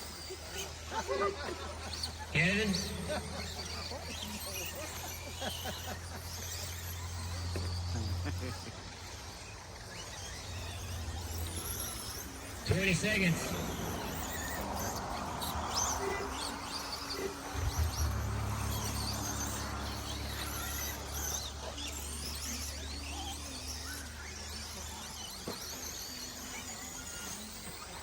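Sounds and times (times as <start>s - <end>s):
electric motors whining: 0.0s - 28.0s
steady low hum: 10.3s - 22.2s.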